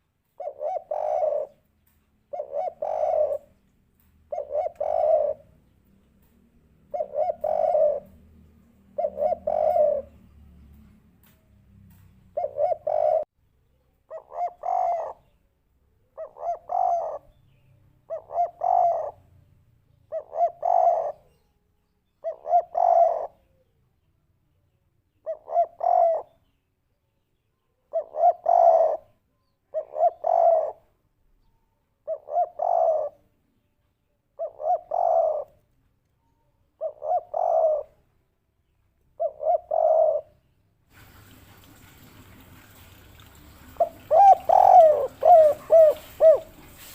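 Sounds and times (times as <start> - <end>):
dove cooing: 0.4 - 1.6, 2.3 - 3.6, 4.3 - 5.7, 6.8 - 10.3, 12.3 - 13.3, 14.1 - 15.4, 16.1 - 17.4, 18.1 - 19.3, 20.1 - 21.4, 22.2 - 23.7, 25.2 - 26.4, 27.9 - 30.9, 32.0 - 33.3, 34.4 - 35.6, 36.8 - 38.1, 39.1 - 46.9.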